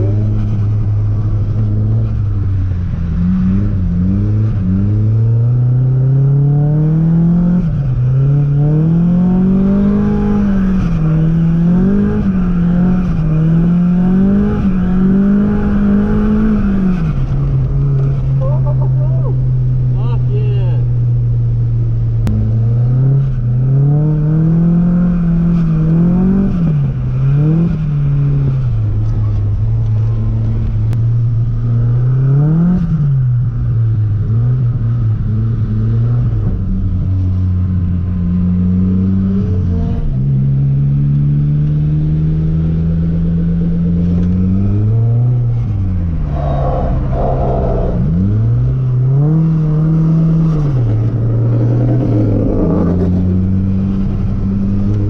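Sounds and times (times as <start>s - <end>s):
car engine revving: 41.1s - 55.0s.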